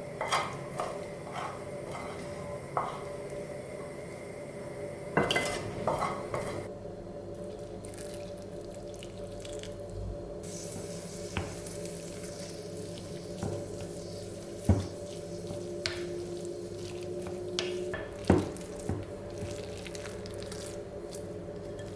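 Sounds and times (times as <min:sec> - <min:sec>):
water running at sink: 0:10.4 - 0:21.9.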